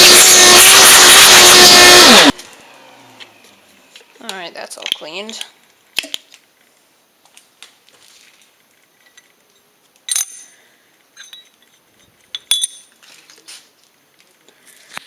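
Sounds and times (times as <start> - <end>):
sharp metallic clinks: 10.1 - 13.0.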